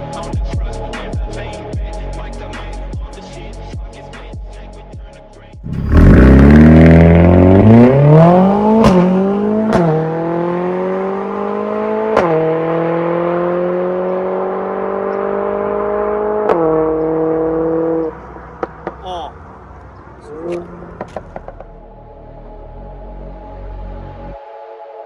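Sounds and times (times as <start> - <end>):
car engine accelerating: 5.6 - 21.7
exhaust cracks: 5.7 - 10.2.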